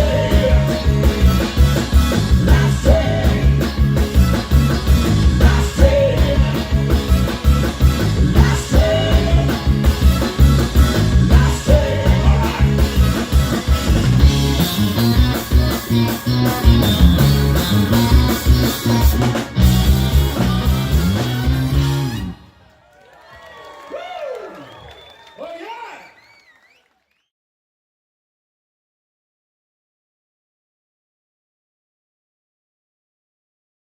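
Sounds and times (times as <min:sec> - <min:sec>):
blues band playing: 0:00.0 - 0:22.6
guitar: 0:00.0 - 0:22.6.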